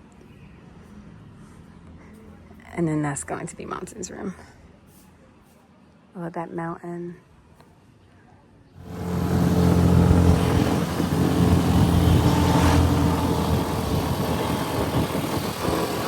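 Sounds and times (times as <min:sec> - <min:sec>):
motorbike engine cruising: 0:08.8 - 0:16.0
road noise: 0:08.8 - 0:16.0.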